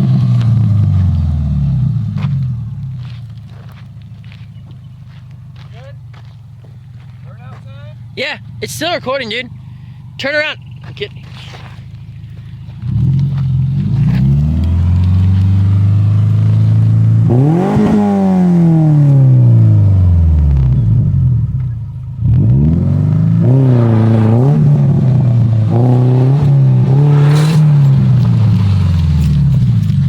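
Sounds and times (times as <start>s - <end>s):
car engine revving hard: 12.7s - 21.6s, 22.2s - 30.0s.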